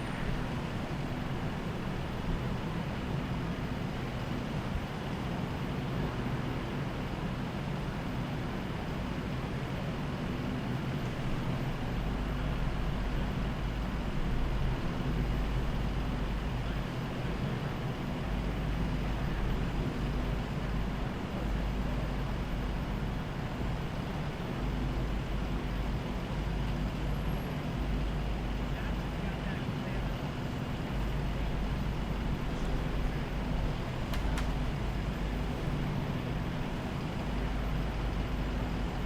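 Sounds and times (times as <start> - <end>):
low engine hum: 0.0 - 39.0
road traffic: 28.7 - 39.0.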